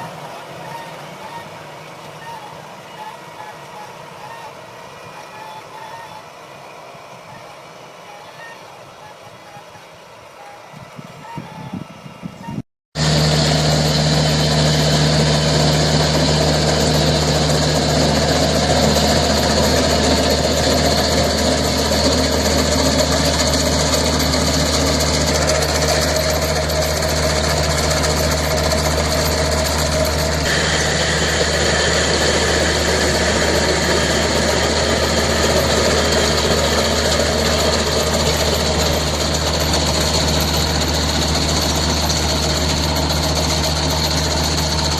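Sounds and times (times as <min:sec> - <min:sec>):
large engine running steadily: 0:13.0 - 0:44.9.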